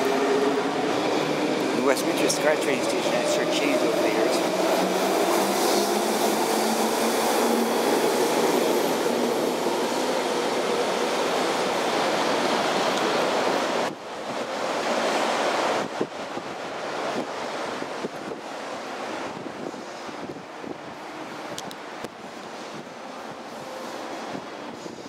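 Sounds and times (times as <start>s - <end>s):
train rail rumble: 0.0s - 25.0s
wind noise on microphone: 15.2s - 25.0s.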